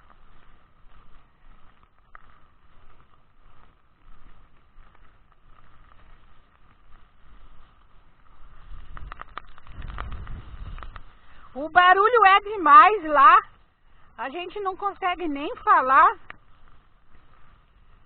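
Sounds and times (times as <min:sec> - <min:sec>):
wind buffeting microphone: 0:07.2 - 0:18.0
strong wind: 0:08.3 - 0:12.9.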